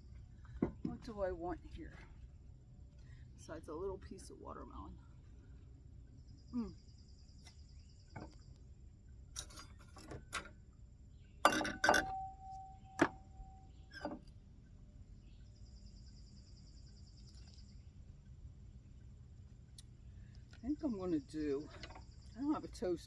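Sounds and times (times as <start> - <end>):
dishes and utensils clinking: 11.4 - 12.4
short ringing tone: 11.8 - 13.8.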